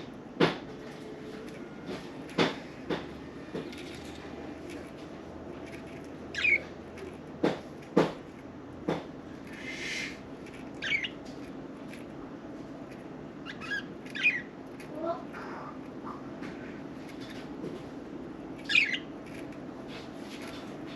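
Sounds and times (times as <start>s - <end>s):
sharp knocks: 1.9s - 4.0s, 7.3s - 9.2s
budgerigars chirping: 6.3s - 6.7s, 10.8s - 11.2s, 13.4s - 14.5s, 18.6s - 19.1s.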